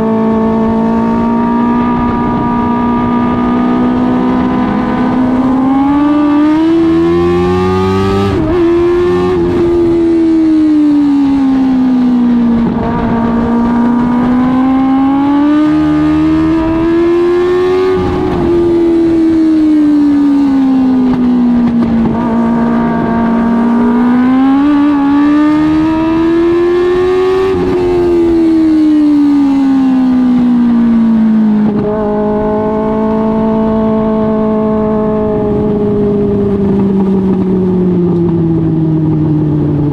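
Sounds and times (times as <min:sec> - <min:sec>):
racing car engine revving: 0:00.0 - 0:11.7, 0:12.6 - 0:29.8.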